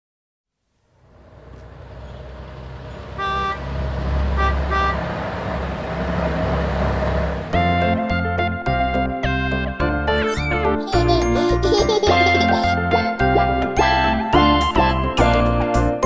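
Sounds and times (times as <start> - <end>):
low engine rumble: 0.8 - 8.3
vehicle horn tooting: 1.3 - 7.6.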